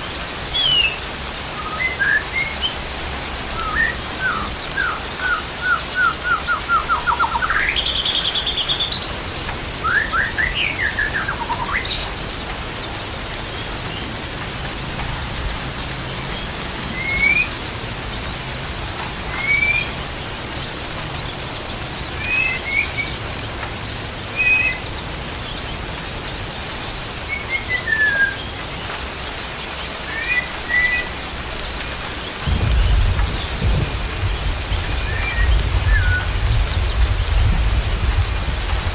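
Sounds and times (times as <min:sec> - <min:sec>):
steady hiss: 0:00.0 - 0:38.9
songbird whistling: 0:01.6 - 0:02.8, 0:03.5 - 0:09.2, 0:09.8 - 0:12.0, 0:16.9 - 0:17.6, 0:19.3 - 0:20.0, 0:24.4 - 0:24.9, 0:27.3 - 0:28.5, 0:30.0 - 0:31.2, 0:32.5 - 0:36.9.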